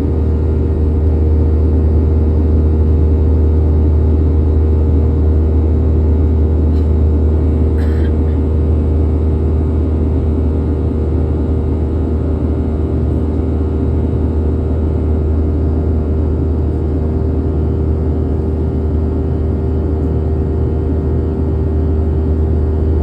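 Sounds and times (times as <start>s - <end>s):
jet engines at high power: 0.0s - 23.0s.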